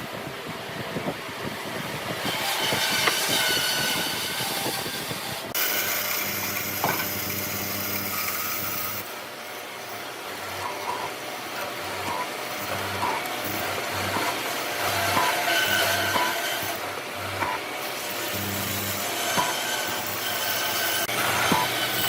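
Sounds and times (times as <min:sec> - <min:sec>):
rasping strokes on wood: 0:02.1 - 0:09.0, 0:11.6 - 0:22.0
electric power tool humming: 0:02.2 - 0:22.0.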